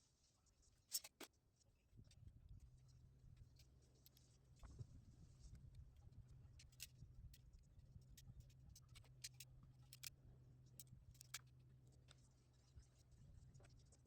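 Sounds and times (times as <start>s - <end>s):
faint clicks and ticks: 5.5s - 14.0s.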